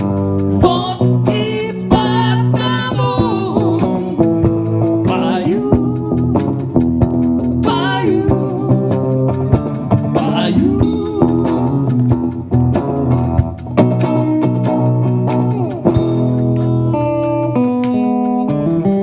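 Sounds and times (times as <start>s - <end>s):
live blues-rock band: 0.0s - 19.0s
person singing: 0.6s - 6.9s, 7.6s - 12.2s.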